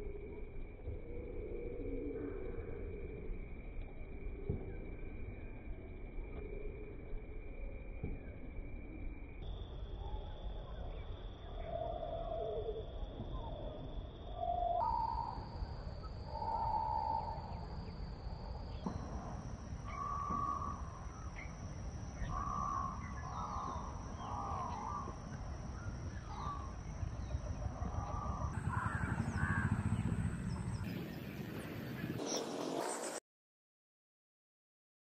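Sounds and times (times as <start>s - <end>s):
birds calling: 19.8s - 33.1s.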